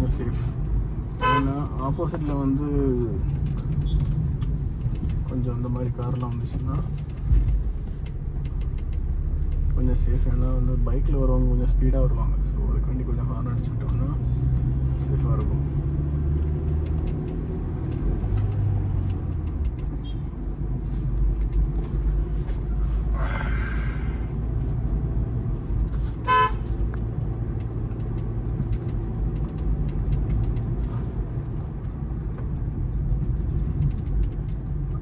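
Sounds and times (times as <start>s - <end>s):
car engine and road rumble: 0.0s - 35.0s
short car horn toot: 26.2s - 26.6s.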